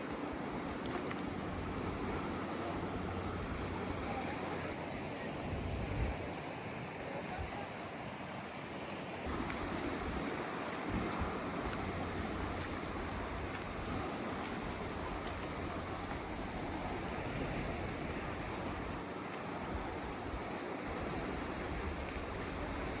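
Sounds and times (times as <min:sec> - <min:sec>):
sea waves washing: 0:00.0 - 0:05.2, 0:06.2 - 0:23.0
wind on microphone: 0:05.4 - 0:06.4, 0:09.3 - 0:23.0.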